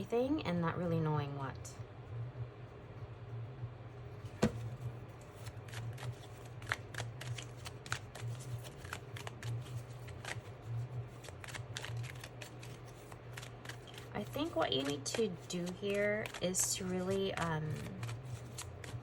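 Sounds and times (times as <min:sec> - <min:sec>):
steady low hum: 0:00.0 - 0:19.0
cards snapping and clicking: 0:05.4 - 0:10.5, 0:11.1 - 0:14.1, 0:17.1 - 0:19.0.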